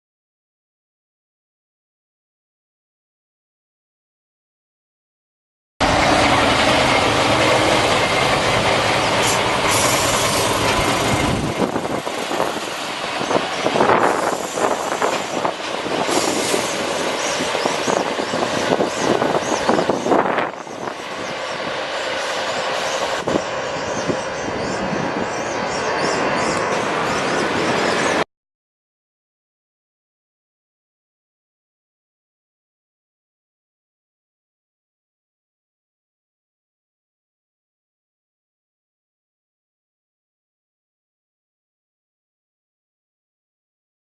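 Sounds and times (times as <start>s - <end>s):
bus rumbling on concrete track: 5.8s - 28.3s.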